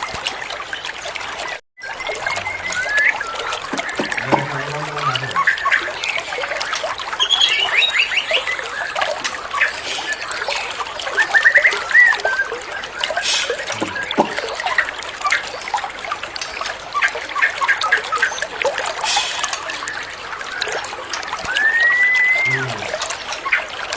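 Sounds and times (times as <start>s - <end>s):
water trickling and splashing: 0.0s - 23.9s
songbird chirping: 1.9s - 6.5s, 13.6s - 15.0s.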